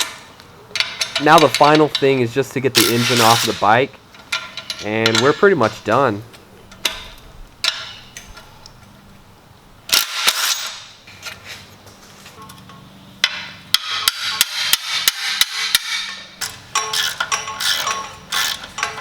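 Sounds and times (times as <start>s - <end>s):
sharp metallic knocks: 13.2s - 19.0s.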